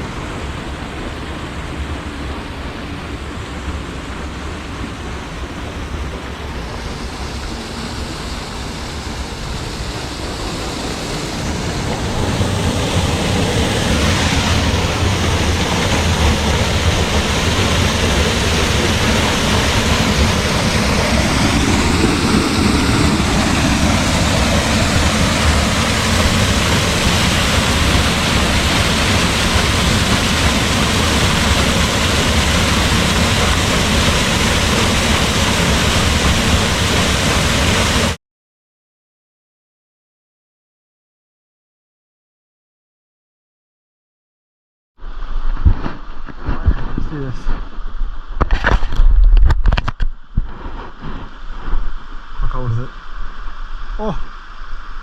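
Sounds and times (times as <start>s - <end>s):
waterfall rushing: 0.0s - 38.2s.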